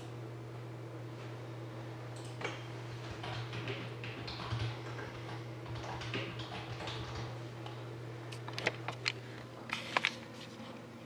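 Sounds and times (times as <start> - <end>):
steady low hum: 0.0 - 11.0
soft handling and rustling: 8.3 - 10.9.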